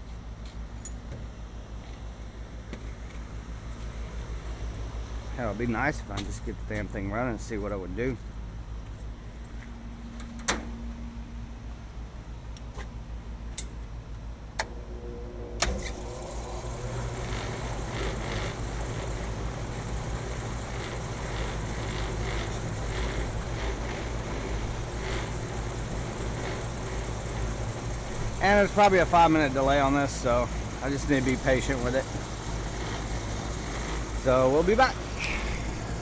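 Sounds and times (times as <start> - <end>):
background hum: 0.0 - 36.0
air conditioner motor starting: 14.1 - 36.0.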